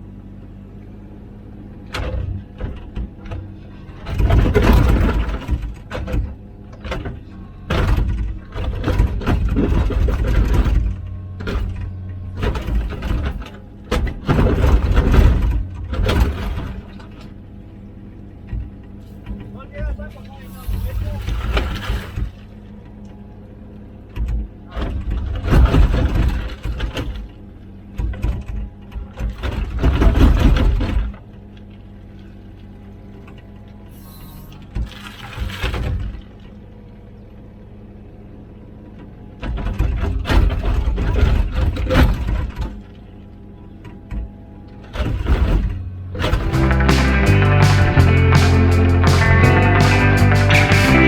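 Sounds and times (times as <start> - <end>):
diesel engine running under load: 0.0 - 21.0, 45.7 - 51.0
excavator diesel engine running: 46.1 - 51.0.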